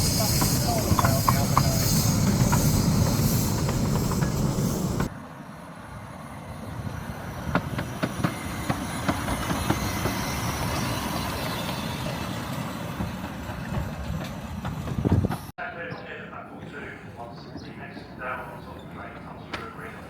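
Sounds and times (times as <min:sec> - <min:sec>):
train wheels clicking on rails: 0:00.0 - 0:05.1, 0:07.4 - 0:15.5
train running: 0:00.0 - 0:20.0.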